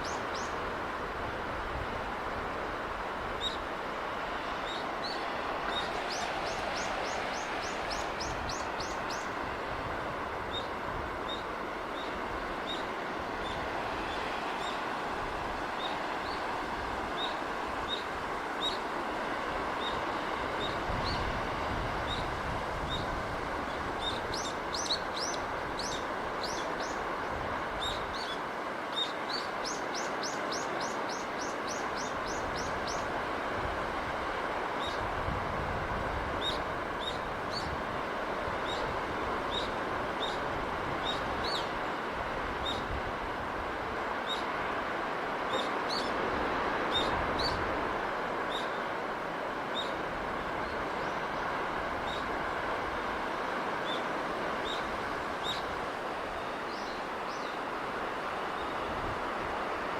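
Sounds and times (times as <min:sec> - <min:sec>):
sea surf: 0:00.0 - 0:59.9
birds chirping: 0:04.6 - 0:09.4, 0:53.8 - 0:55.8, 0:56.4 - 0:57.7.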